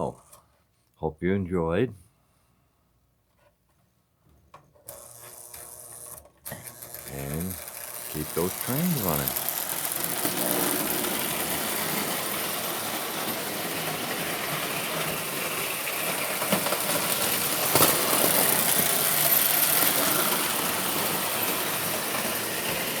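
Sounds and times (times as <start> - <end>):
toy train motor whirring: 4.8 - 23.0.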